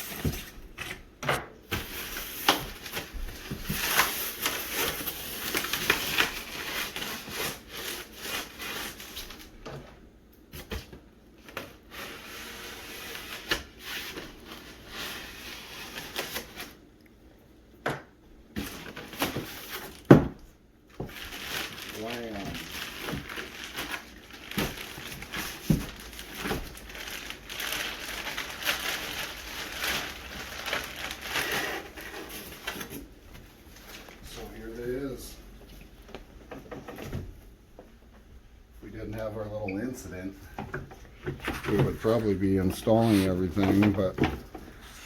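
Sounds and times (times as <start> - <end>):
cardboard and styrofoam rustling: 1.6 - 9.6, 10.5 - 16.8, 18.6 - 35.3, 41.2 - 45.0.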